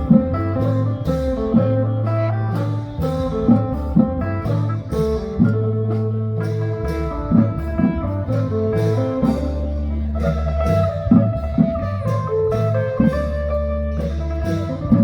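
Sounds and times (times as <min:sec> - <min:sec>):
long held bass notes: 0:00.0 - 0:15.0
plucked guitar melody: 0:00.0 - 0:15.0
drum hits: 0:02.6 - 0:09.8.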